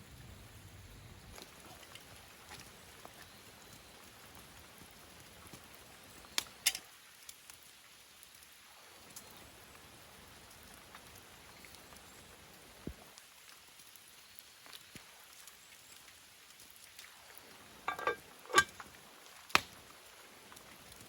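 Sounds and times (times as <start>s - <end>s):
firewood crackling: 0.2s - 21.0s
fire popping: 17.0s - 21.0s.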